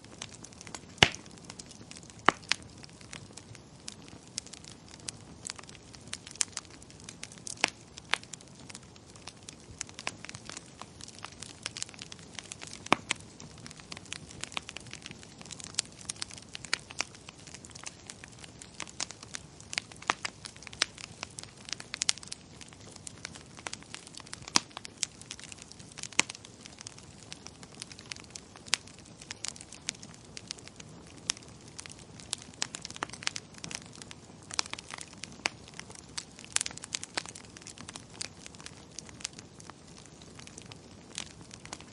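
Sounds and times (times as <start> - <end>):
wood fire pops and snaps: 0.0 - 41.9.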